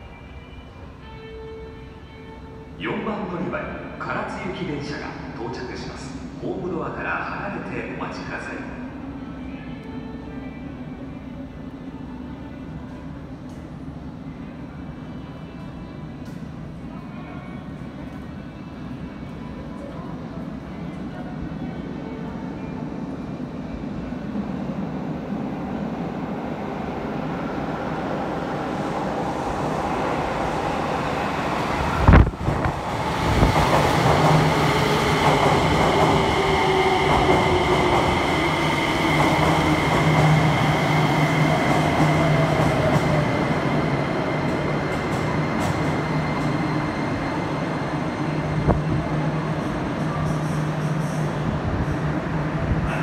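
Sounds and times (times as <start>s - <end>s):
train rumbling: 17.7s - 53.0s.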